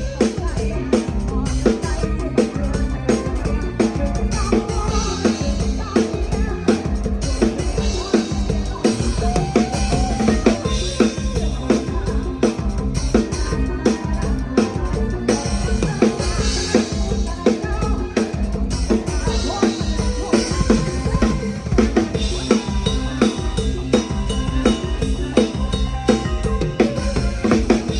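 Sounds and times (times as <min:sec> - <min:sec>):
band music: 0:00.0 - 0:27.9
drum kit beat: 0:00.0 - 0:27.9.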